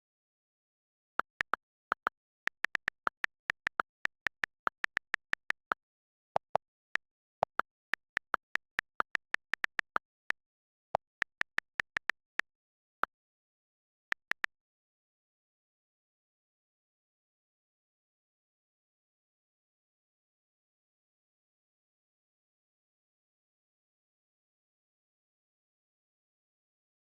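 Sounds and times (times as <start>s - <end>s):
computer keyboard key clicks: 1.2s - 5.8s, 7.4s - 10.4s, 11.0s - 12.4s.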